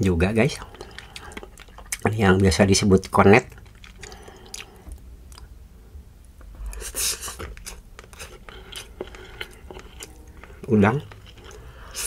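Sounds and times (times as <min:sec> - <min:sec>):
soft wet chewing: 0:00.4 - 0:05.6, 0:06.2 - 0:12.0
mouth clicks and smacks: 0:00.8 - 0:05.5.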